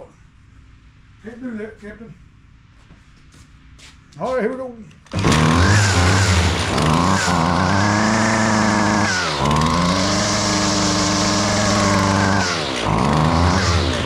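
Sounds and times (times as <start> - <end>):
string trimmer engine revving: 5.1 - 14.0.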